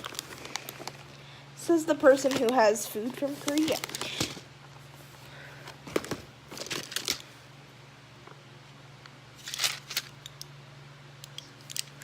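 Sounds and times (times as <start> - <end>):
plastic packets crinkling: 0.0 - 1.2, 2.0 - 4.5, 5.7 - 7.4, 9.4 - 10.2.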